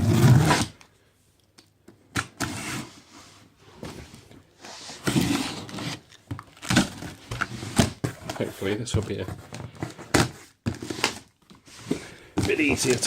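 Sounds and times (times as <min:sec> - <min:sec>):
tearing packing tape and cardboard: 0:00.0 - 0:00.8.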